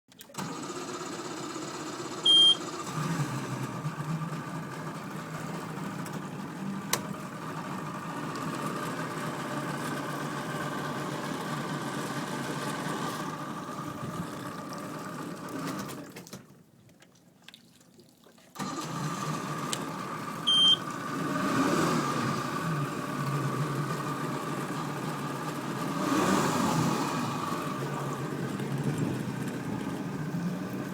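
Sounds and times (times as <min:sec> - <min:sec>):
outboard motor running: 0:00.1 - 0:30.9
short high beep: 0:02.3 - 0:02.6, 0:20.5 - 0:20.8.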